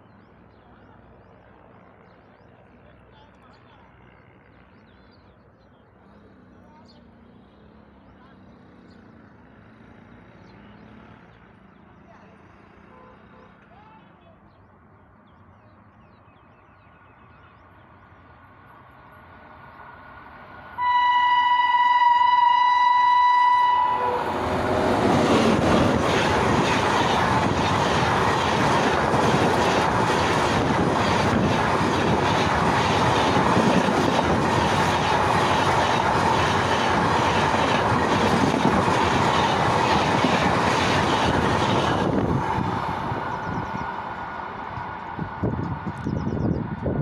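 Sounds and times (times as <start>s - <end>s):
train rushing past: 19.5s - 47.0s
locomotive horn blast: 20.8s - 24.9s.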